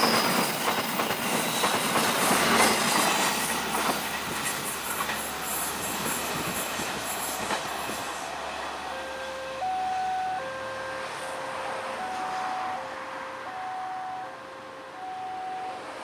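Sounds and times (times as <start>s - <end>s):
train wheels clicking over rails: 0.0s - 9.1s.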